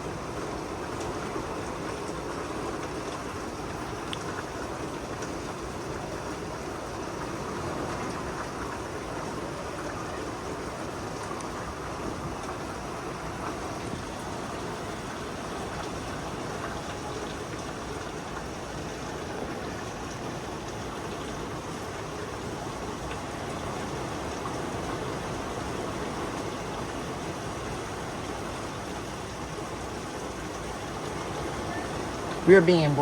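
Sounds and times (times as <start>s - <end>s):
heavy rain falling: 0.0s - 33.0s
raindrop ticks: 4.0s - 5.4s.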